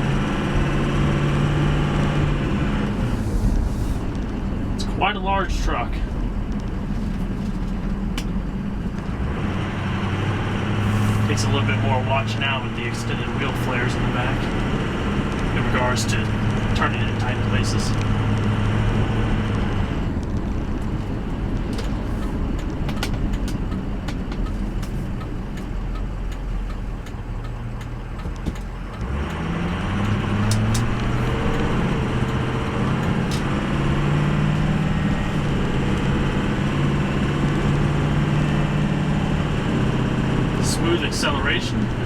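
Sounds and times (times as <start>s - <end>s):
diesel truck engine driving: 0.0s - 42.0s.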